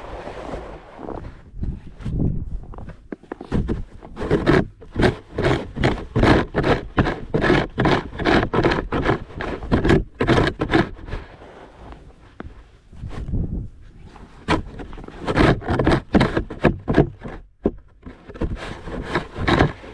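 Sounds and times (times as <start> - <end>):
snow shovel scraping pavement: 0.0 - 1.4, 3.5 - 12.0, 18.1 - 19.9.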